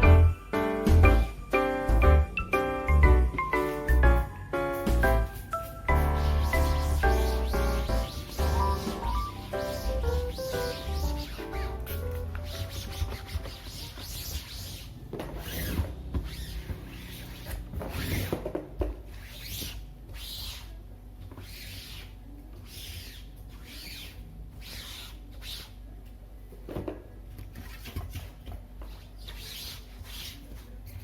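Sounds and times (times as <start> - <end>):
cloth scrubbing a surface: 5.9 - 15.7.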